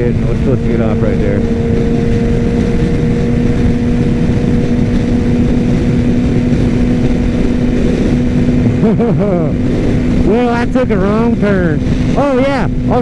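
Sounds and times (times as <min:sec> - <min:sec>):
dense low rumble: 0:00.0 - 0:13.0
motorcycle engine running steadily: 0:00.0 - 0:13.0.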